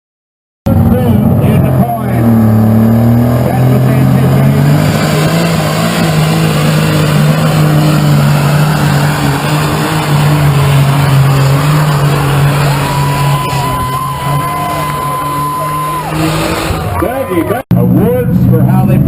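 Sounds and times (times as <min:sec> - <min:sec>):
tractor engine running under load: 0:00.7 - 0:17.5.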